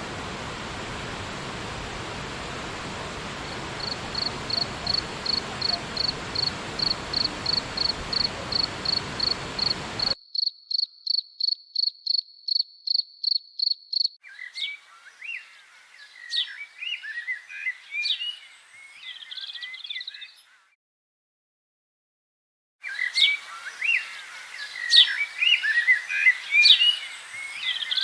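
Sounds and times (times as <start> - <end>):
hiss: 0.0 - 10.2
insect chirping: 3.2 - 14.2.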